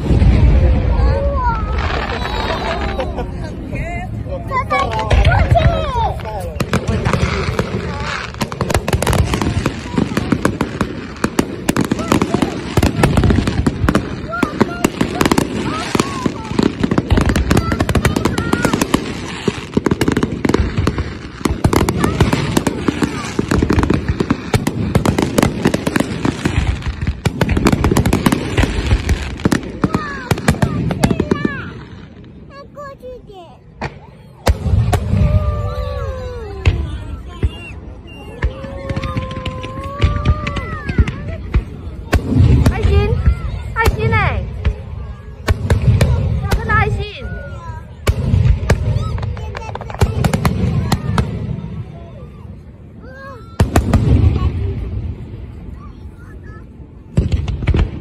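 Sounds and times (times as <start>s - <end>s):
fireworks bangs and crackles: 0.0s - 58.0s
onlookers calling out: 0.8s - 3.3s, 11.3s - 21.0s, 33.8s - 44.2s.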